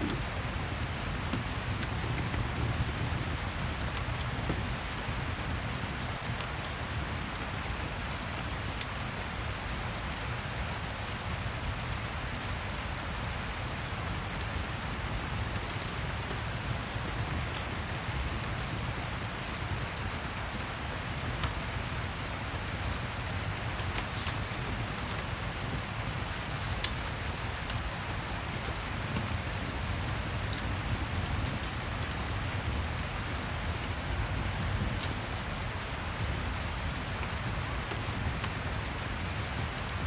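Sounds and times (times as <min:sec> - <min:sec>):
steady rain: 0:00.0 - 0:40.0
fireplace crackling: 0:20.6 - 0:30.1, 0:35.6 - 0:40.0.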